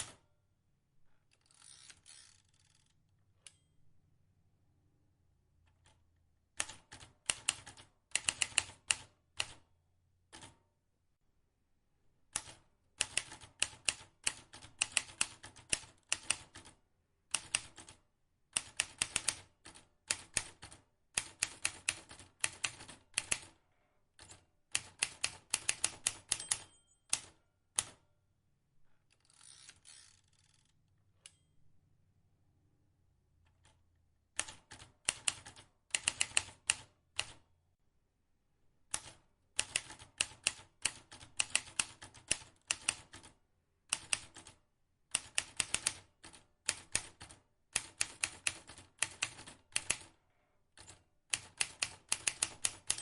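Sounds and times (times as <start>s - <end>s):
typewriter key strikes: 25.5s - 27.9s, 51.4s - 53.0s.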